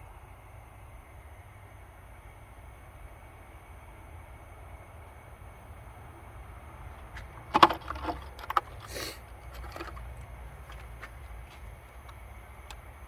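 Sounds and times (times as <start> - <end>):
tools clicking and knocking: 7.0 - 11.1
short scraping hiss: 8.8 - 9.3.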